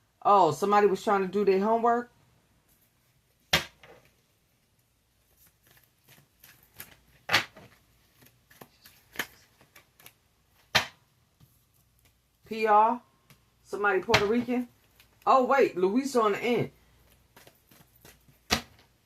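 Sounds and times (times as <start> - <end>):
cards ticking and rustling: 5.3 - 10.2, 16.9 - 18.9
cards slapping down: 17.1 - 18.9.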